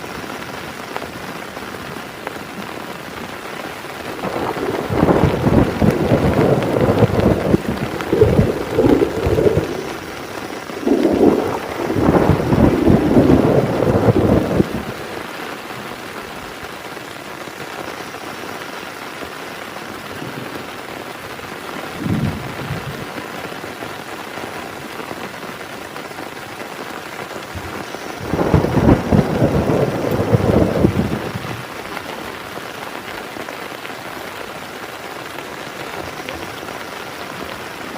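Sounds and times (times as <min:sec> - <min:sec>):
heavy rain falling: 0:00.0 - 0:37.9
thunder rumbling: 0:04.1 - 0:15.7, 0:21.8 - 0:23.7, 0:27.3 - 0:32.0.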